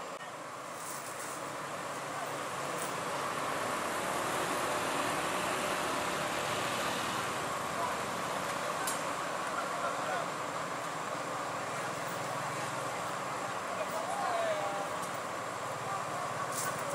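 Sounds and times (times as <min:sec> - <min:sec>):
road noise: 0:00.0 - 0:16.9
vehicle engine: 0:00.0 - 0:16.9.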